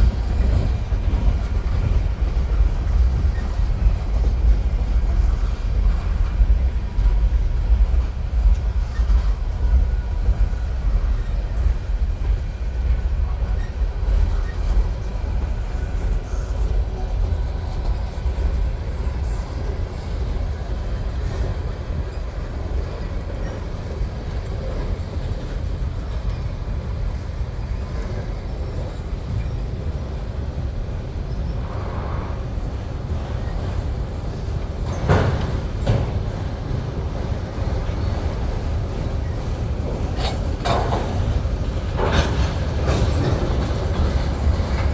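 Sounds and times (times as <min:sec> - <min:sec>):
freight train rumbling past: 0:00.0 - 0:44.9.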